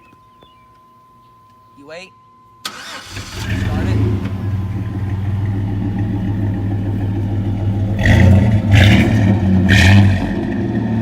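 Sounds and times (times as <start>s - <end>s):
engine revving blips: 2.6s - 11.0s
pickup engine idling: 2.7s - 11.0s.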